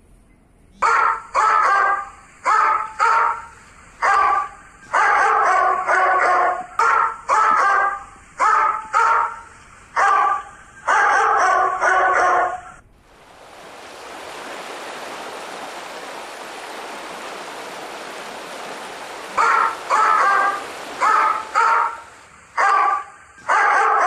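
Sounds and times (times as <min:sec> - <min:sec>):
dog barking: 0:00.8 - 0:12.8, 0:18.4 - 0:24.0
steady rushing noise: 0:12.9 - 0:23.4.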